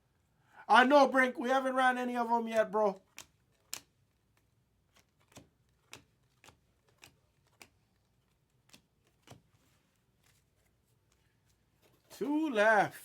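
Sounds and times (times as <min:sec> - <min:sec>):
soft flicks of cards turning: 0:02.9 - 0:12.3.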